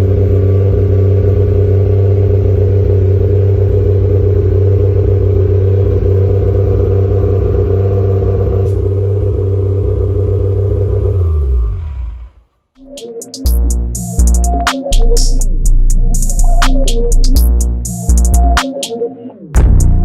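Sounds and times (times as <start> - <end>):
car engine running through exhaust: 0.0 - 12.5, 19.6 - 20.0.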